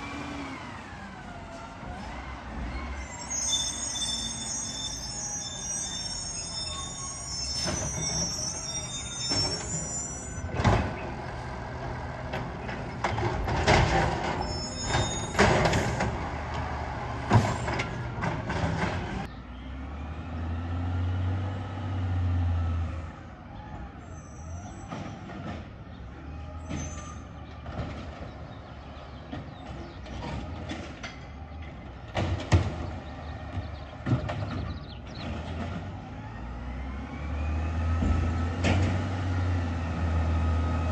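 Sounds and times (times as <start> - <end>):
high squeal: 2.6 - 10.6, 14.2 - 16.0, 24.0 - 25.2, 26.5 - 27.4
clanks and bangs: 12.2 - 19.3, 29.2 - 36.0.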